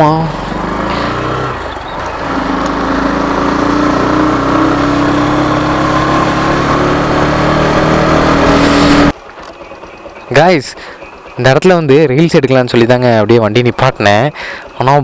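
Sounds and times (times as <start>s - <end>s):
motorcycle engine under throttle: 0.0s - 10.3s
road and wind noise: 0.0s - 10.3s.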